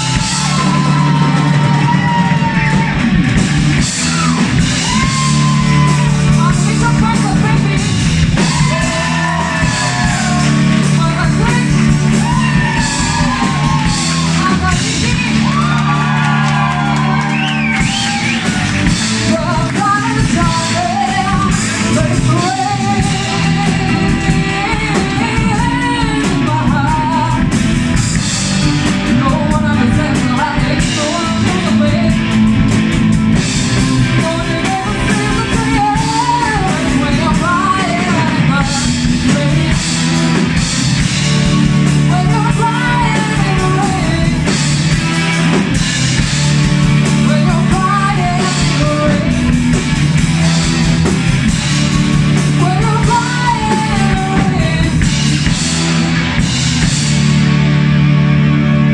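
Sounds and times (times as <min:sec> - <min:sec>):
rock band playing: 0:00.0 - 0:58.9
person singing: 0:17.6 - 0:27.6, 0:29.0 - 0:32.6, 0:33.6 - 0:40.4, 0:42.0 - 0:44.8, 0:46.9 - 0:49.6, 0:52.4 - 0:55.2.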